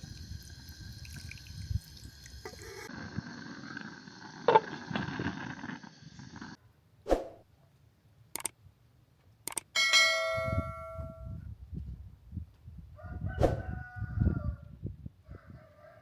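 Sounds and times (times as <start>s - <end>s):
rooster crowing: 13.0s - 14.7s, 15.3s - 16.0s.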